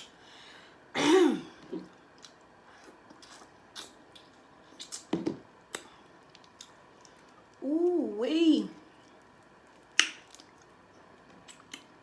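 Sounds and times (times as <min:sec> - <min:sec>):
soft chewing and mouth clicks: 0:01.6 - 0:05.1, 0:05.7 - 0:07.6, 0:08.8 - 0:12.0.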